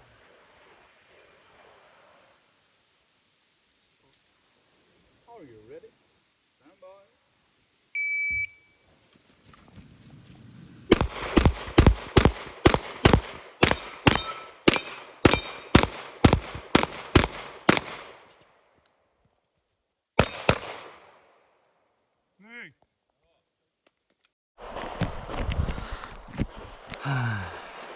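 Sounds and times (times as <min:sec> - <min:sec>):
pistol shots: 0:10.9 - 0:18.3, 0:20.2 - 0:21.3.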